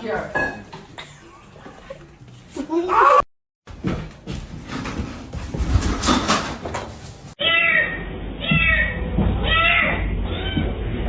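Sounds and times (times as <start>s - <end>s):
cat meowing: 7.4s - 10.8s.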